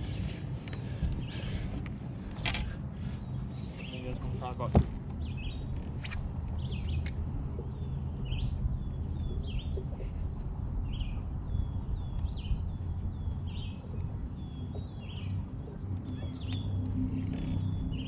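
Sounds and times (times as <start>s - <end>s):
birds chirping: 0.0s - 18.0s
steady low rumble: 0.0s - 18.0s.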